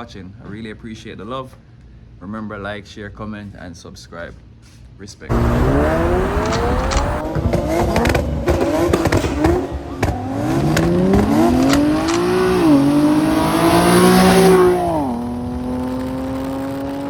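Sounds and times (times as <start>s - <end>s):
car engine accelerating: 5.3s - 17.0s.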